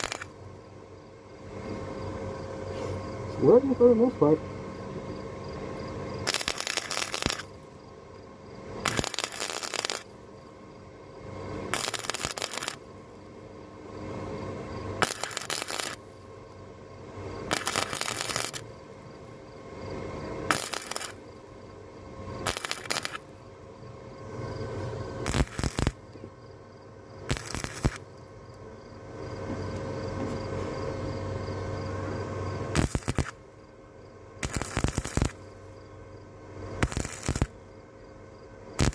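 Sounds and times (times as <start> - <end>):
welding arc crackle: 0.0 - 0.4, 6.2 - 7.6, 8.8 - 10.2, 11.7 - 12.9, 15.0 - 16.6, 17.4 - 19.4, 20.5 - 21.6, 22.4 - 23.4, 25.2 - 26.1, 27.3 - 28.2, 32.7 - 33.4, 34.4 - 35.8, 36.7 - 37.6
welder steady hum: 0.0 - 38.9.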